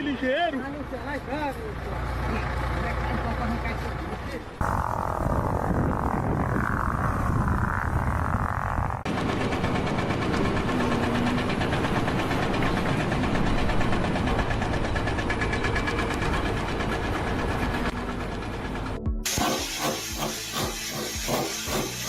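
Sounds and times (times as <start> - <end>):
engine running with fast knock: 4.6 - 22.0.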